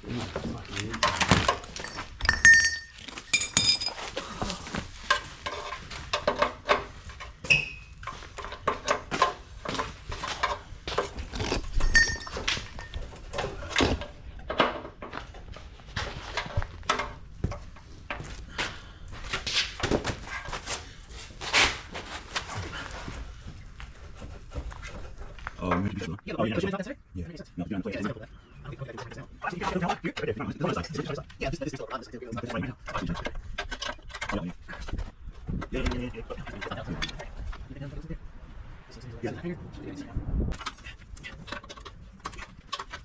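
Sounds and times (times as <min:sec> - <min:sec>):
tools and metal parts clinking: 0:00.6 - 0:18.3
ringing metal clanks: 0:01.0 - 0:04.2, 0:11.7 - 0:14.0.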